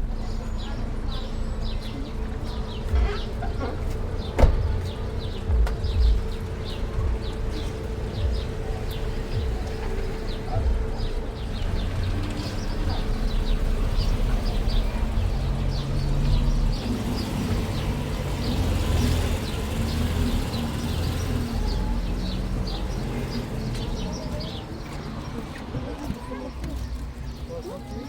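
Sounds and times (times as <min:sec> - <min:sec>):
steady low rumble: 0:00.0 - 0:18.3.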